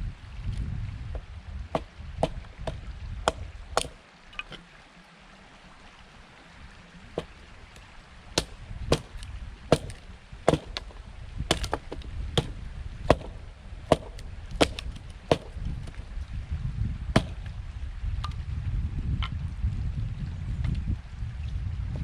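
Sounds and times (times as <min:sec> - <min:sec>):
stream flowing: 0:00.0 - 0:18.4
wind: 0:00.0 - 0:22.0
blade chopping wood: 0:01.7 - 0:04.6, 0:07.2 - 0:07.4, 0:08.4 - 0:16.1, 0:17.2 - 0:17.5.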